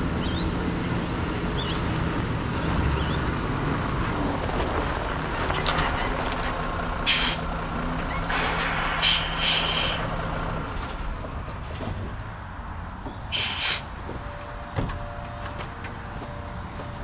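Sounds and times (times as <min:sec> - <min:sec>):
diesel engine running: 0:00.0 - 0:17.0
air brake hisses: 0:07.1 - 0:07.5, 0:08.3 - 0:10.1, 0:13.3 - 0:13.9.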